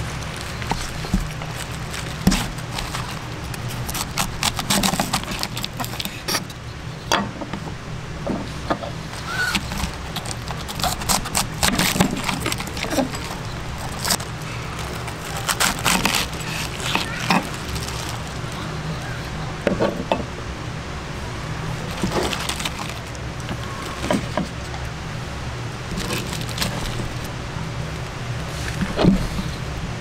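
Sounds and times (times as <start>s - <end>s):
steady low hum: 0.0s - 30.0s
small hard objects clinking: 9.2s - 18.7s, 21.8s - 24.4s.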